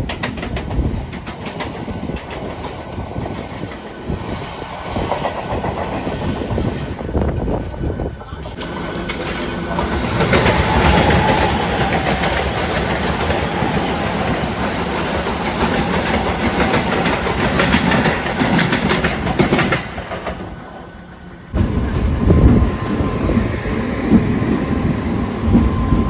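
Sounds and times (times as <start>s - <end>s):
train wheels clattering over rail joints: 0.0s - 4.0s, 5.0s - 20.6s
train rumble: 0.0s - 26.0s.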